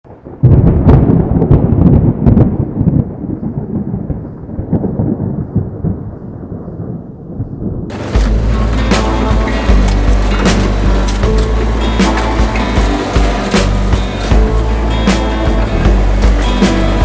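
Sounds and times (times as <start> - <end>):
thunder rumbling: 0.1 - 17.0
music: 7.9 - 17.0.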